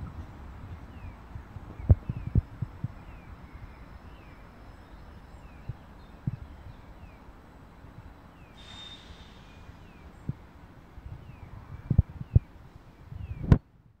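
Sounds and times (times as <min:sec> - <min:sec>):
train rumbling: 0:00.0 - 0:13.4
brake hiss with high whistle: 0:08.5 - 0:10.0.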